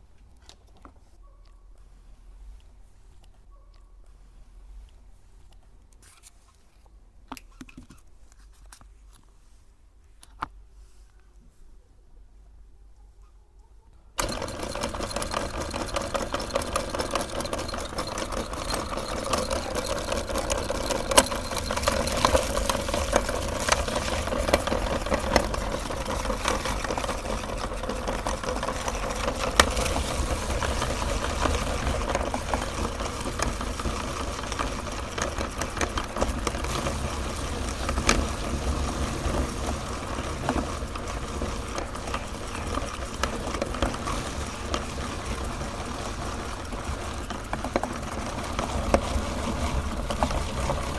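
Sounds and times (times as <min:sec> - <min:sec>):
cones crunching in grinder: 0:14.2 - 0:50.9
electric grinder motor humming: 0:14.2 - 0:50.9.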